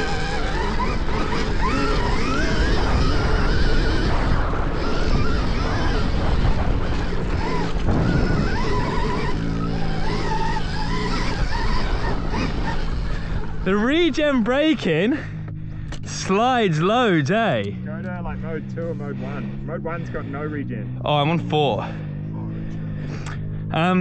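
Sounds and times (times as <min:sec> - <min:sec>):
wind rumble on microphone: 0:00.0 - 0:14.4
electric motorbike motor whining: 0:00.0 - 0:24.0
low hum: 0:00.0 - 0:24.0.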